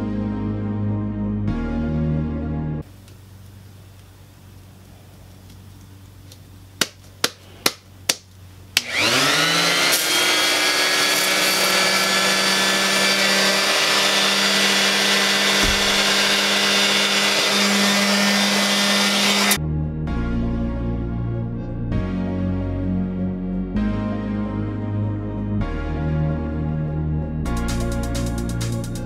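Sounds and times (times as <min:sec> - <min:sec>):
electric sander running: 0:08.8 - 0:19.6.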